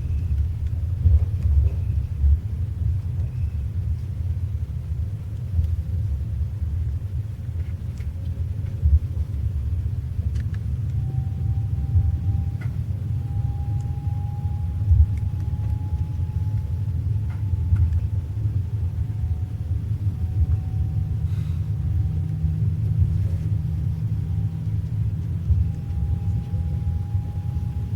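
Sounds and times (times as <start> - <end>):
train carriage rumble: 0.0 - 27.9
faint high whine: 10.9 - 27.9.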